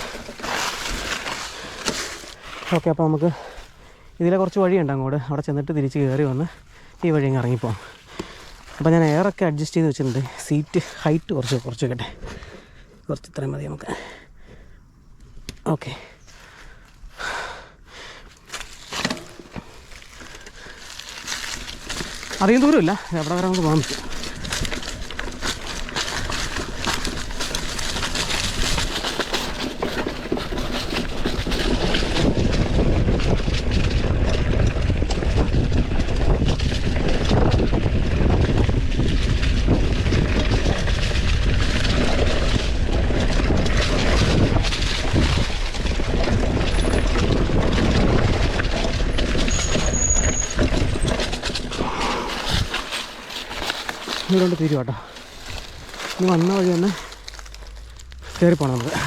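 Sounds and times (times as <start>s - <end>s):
bike rattling: 0.0s - 14.6s, 15.2s - 59.0s
low rumble: 55.0s - 59.0s.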